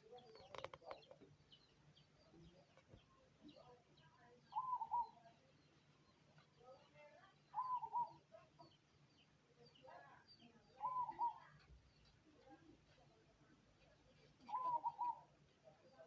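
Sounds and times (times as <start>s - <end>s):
small birds chirping: 0.0s - 16.0s
dove cooing: 4.5s - 5.3s, 7.5s - 8.4s, 10.8s - 11.7s, 14.4s - 15.4s.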